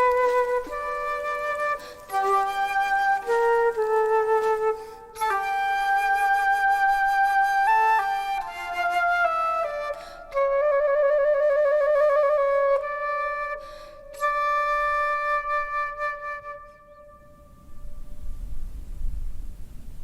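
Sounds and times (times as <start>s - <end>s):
solo flute melody: 0.0s - 18.5s
flute player breaths: 1.8s - 2.1s, 4.8s - 5.1s, 10.0s - 10.4s, 13.6s - 14.1s.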